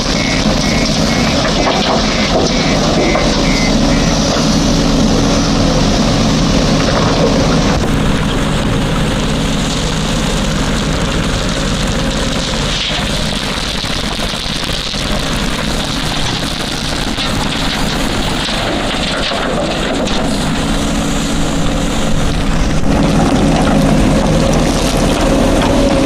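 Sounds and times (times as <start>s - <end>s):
diesel engine running hard: 0.0s - 26.0s.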